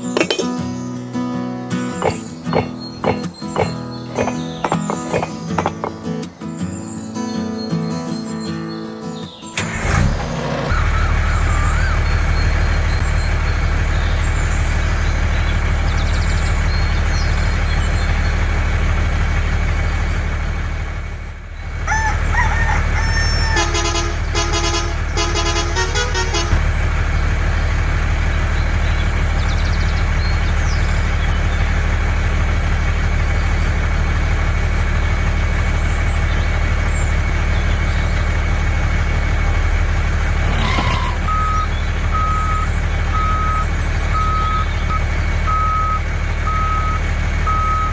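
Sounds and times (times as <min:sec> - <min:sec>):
vehicle engine drone: 0:00.0 - 0:06.4, 0:09.6 - 0:47.9
short horn toots: 0:23.6 - 0:26.6.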